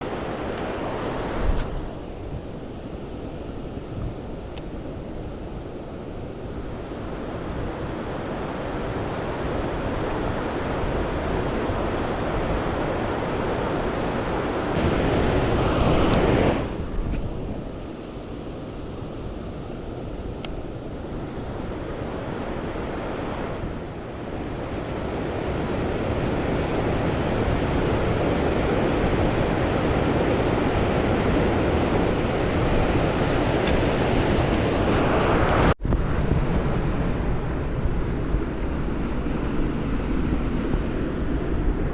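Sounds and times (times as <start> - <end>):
river water rushing: 0.0 - 2.0.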